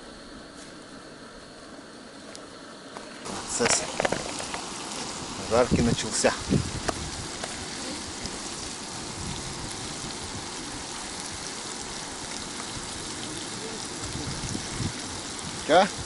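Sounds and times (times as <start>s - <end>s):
fish frying in hot oil: 3.2s - 16.0s.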